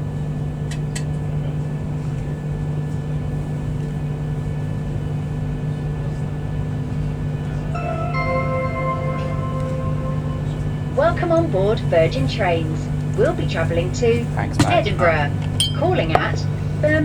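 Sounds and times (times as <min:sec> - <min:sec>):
public-address chime: 0:07.8 - 0:12.8.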